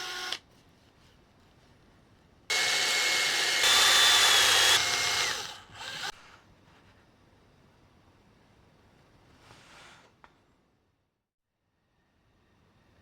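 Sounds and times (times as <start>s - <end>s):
power tool motor whining: 2.5s - 6.2s.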